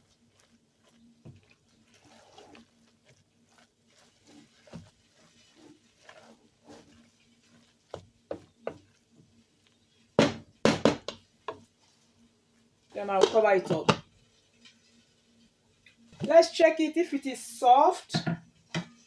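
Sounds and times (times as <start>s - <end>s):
pots and utensils scraping: 0.9s - 9.0s, 12.9s - 15.2s.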